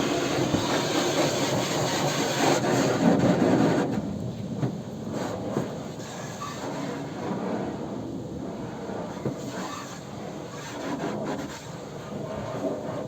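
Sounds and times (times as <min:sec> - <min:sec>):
rubbing and scrubbing on car body: 0:09.2 - 0:13.0.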